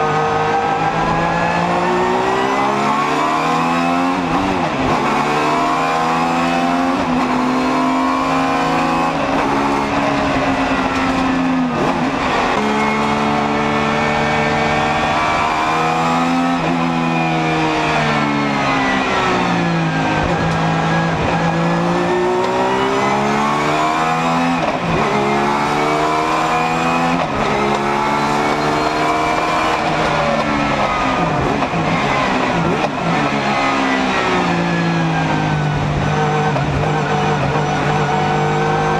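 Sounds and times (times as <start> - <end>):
race car engine accelerating: 0.0 - 38.9.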